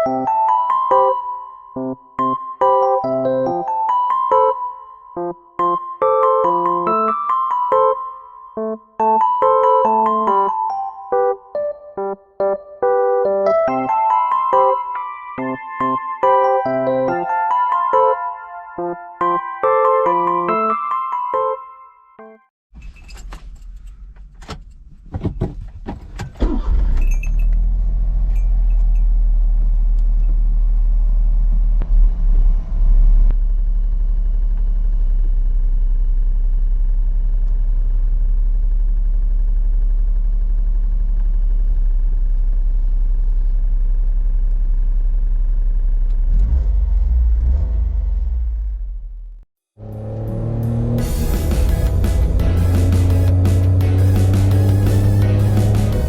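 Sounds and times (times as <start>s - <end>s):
car engine starting and running: 22.8s - 56.0s.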